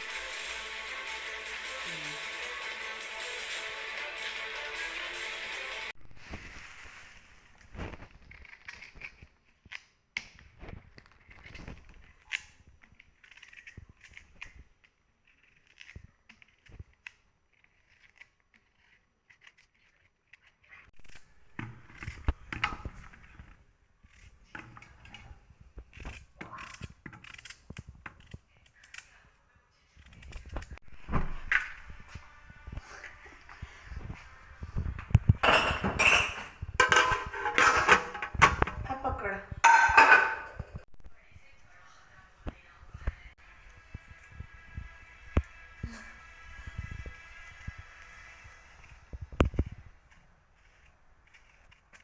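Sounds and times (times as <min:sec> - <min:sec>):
background music: 0:00.0 - 0:05.9
objects clicking and knocking: 0:34.8 - 0:39.0.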